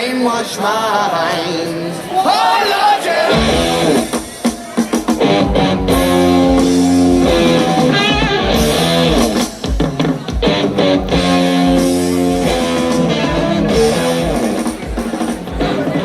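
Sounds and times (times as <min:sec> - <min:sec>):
distorted electric guitars: 0:03.3 - 0:16.0
driving drum kit: 0:03.3 - 0:16.0.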